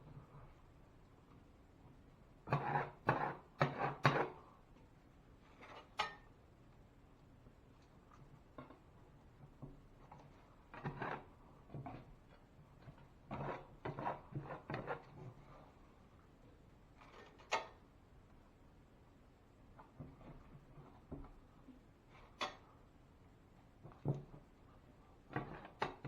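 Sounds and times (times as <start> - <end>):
handling knocks and scrapes: 5.4 - 6.3, 8.5 - 15.8, 19.7 - 22.6, 25.2 - 26.0.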